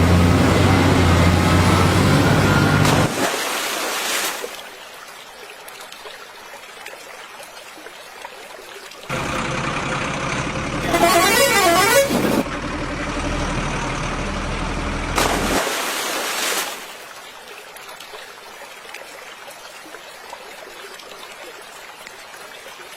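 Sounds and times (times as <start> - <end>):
truck engine running: 0.0 - 3.1, 9.1 - 15.6
flowing water rushing: 0.0 - 9.2, 15.2 - 22.9
warbling truck horn: 10.8 - 12.5.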